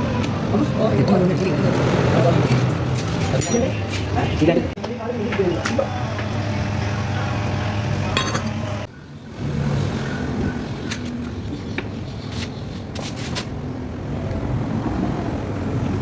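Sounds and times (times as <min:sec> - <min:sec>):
car engine humming: 0:00.0 - 0:11.4.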